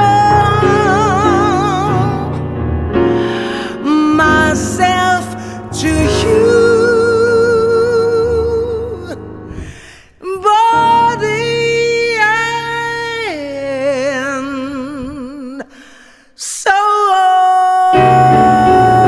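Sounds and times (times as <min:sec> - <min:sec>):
woman singing jazz with vibrato: 0:00.0 - 0:02.4
sustained piano chords: 0:00.0 - 0:15.3, 0:18.0 - 0:19.0
singer breathing: 0:03.0 - 0:03.9, 0:05.3 - 0:05.7, 0:09.4 - 0:10.2, 0:15.6 - 0:16.4.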